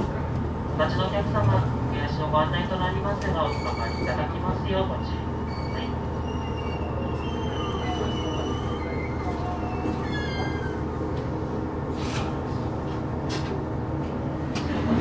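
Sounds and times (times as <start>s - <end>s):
railcar engine and running rumble: 0.0s - 15.0s
high metallic wheel squeals: 5.5s - 10.8s.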